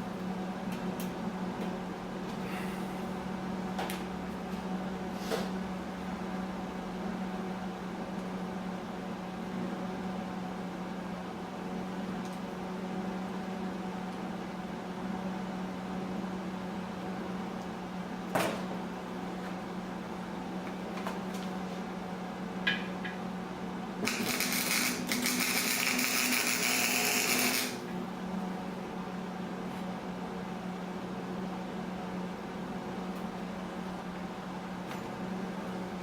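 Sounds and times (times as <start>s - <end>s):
steady low hum: 0.0s - 9.8s
angle grinder grinding steel: 24.1s - 27.8s.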